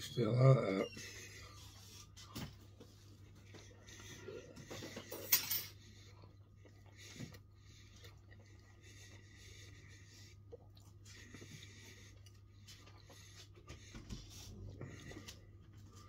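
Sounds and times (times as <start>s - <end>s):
low steady hum: 0.0s - 16.0s
man chewing: 5.8s - 16.0s.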